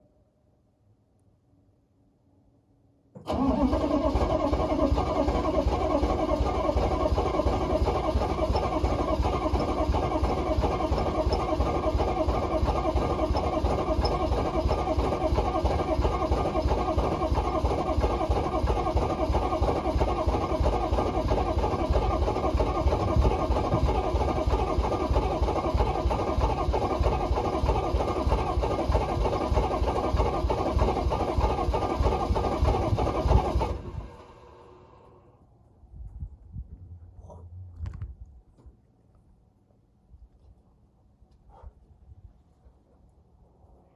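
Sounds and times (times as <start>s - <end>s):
diesel engine starting and running: 3.2s - 35.6s.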